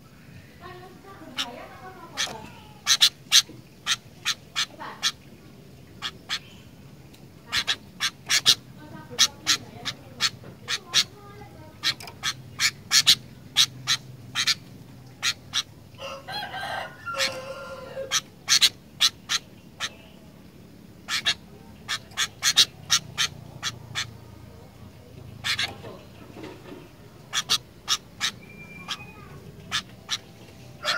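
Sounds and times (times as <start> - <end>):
bird warbling phrase: 0.6 - 5.4, 7.4 - 15.7, 21.0 - 26.2, 27.2 - 30.9.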